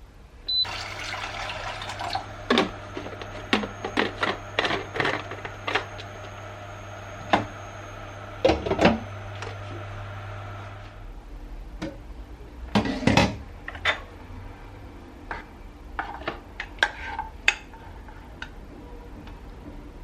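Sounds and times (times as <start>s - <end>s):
low hum: 1.4s - 11.2s.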